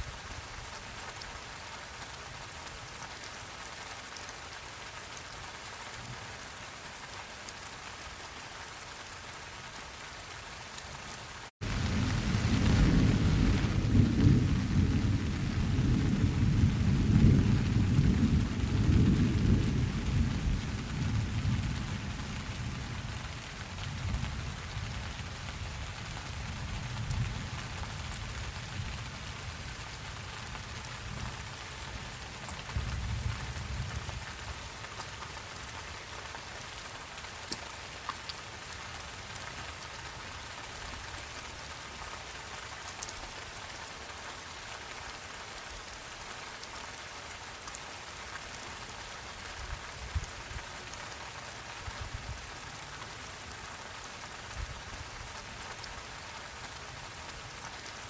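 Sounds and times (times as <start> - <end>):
steady rain: 0.0 - 58.0
thunder rumbling: 11.6 - 25.0.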